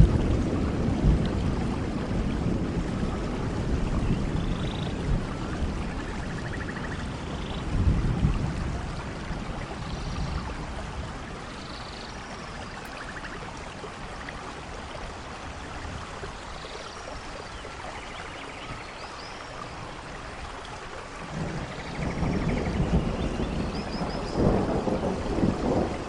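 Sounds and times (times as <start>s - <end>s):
low thunder rumble: 0.0s - 11.6s, 21.2s - 26.0s
steady rainfall: 0.0s - 26.0s.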